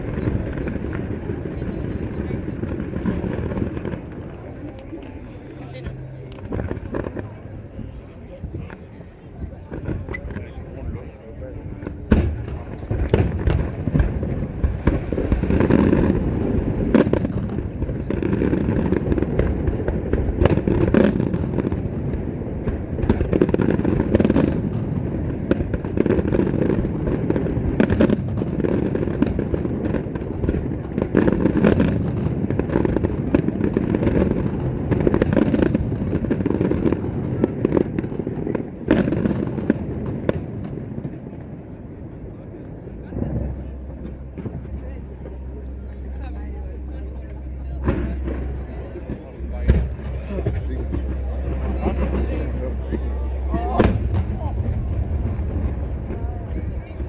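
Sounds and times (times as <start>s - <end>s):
fireworks bursts and booms: 0.0s - 57.0s
sharp firework cracks: 53.4s - 56.2s.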